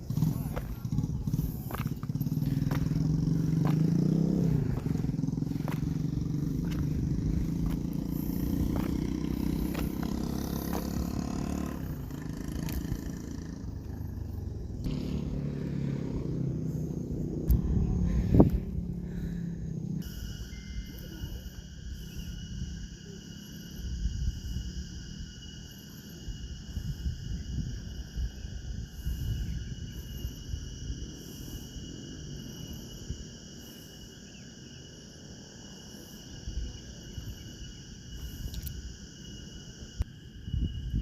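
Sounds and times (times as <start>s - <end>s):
low rumble: 0.0s - 20.0s
crickets trilling: 0.0s - 41.0s
faint pulsing chirp: 0.0s - 41.0s.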